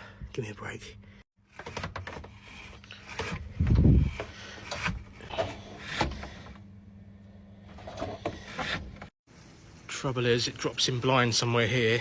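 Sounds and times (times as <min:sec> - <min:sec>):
handling knocks and scrapes: 0:01.5 - 0:06.6, 0:07.7 - 0:09.1.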